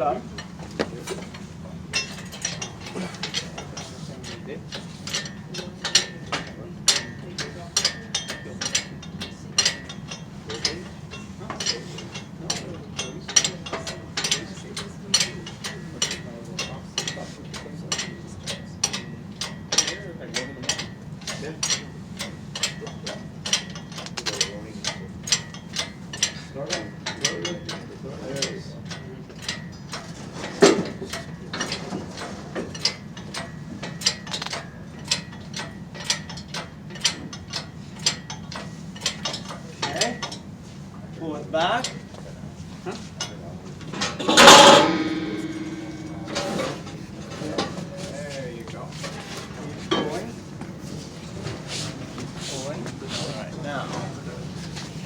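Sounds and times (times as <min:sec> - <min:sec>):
steady low hum: 0:43.4 - 0:55.0
hoist ratchet clicking: 0:44.0 - 0:47.9.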